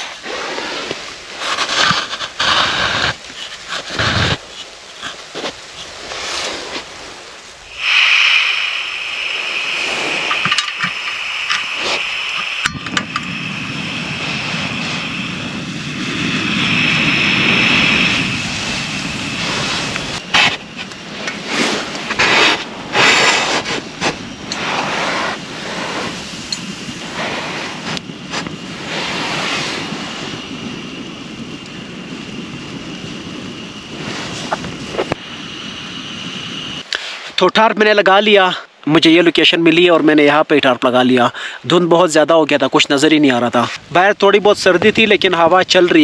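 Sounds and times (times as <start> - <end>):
loud rustling bursts: 0.0 - 12.6, 14.0 - 30.3
wind blowing across microphone: 0.0 - 46.0.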